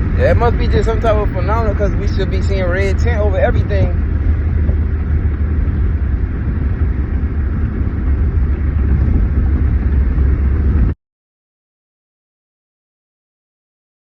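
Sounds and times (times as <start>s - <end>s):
car cabin road and engine noise: 0.0s - 11.0s.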